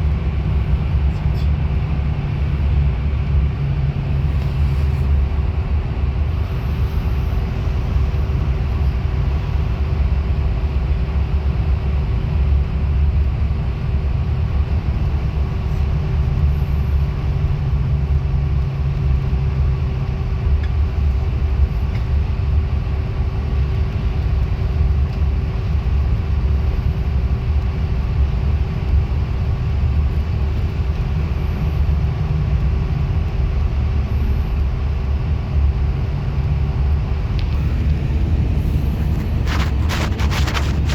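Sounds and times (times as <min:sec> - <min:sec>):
faint whine: 0:00.0 - 0:10.9, 0:34.0 - 0:40.9
bus engine and road rumble: 0:00.0 - 0:40.9.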